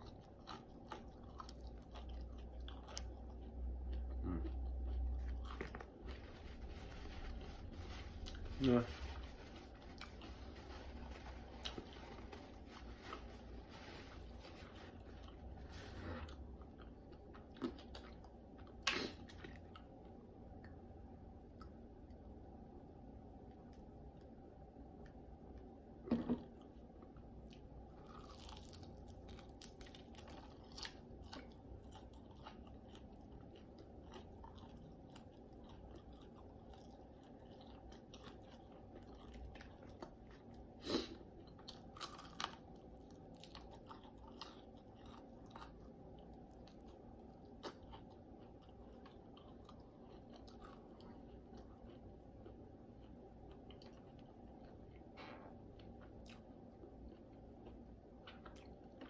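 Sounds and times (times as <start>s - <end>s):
person chewing: 0.0s - 7.5s, 8.2s - 20.8s, 26.1s - 59.0s.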